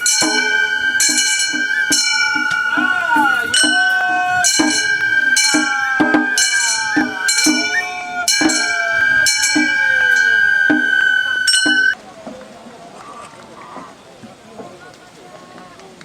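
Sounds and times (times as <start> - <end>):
high flute long note: 0.0 - 12.0
small metal gongs ringing: 0.0 - 12.0.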